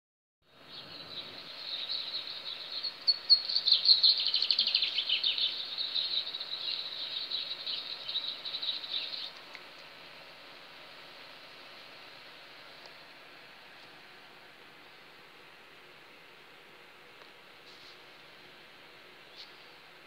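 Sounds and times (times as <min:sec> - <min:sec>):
small birds chirping: 0:00.5 - 0:11.4
faint hiss: 0:00.5 - 0:20.0.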